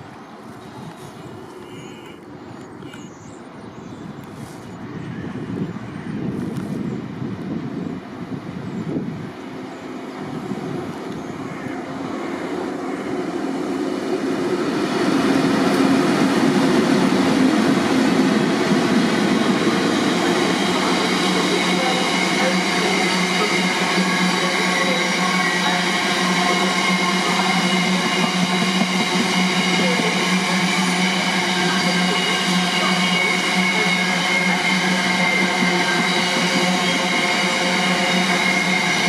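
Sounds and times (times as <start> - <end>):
train wheels rumbling: 10.1 - 39.0.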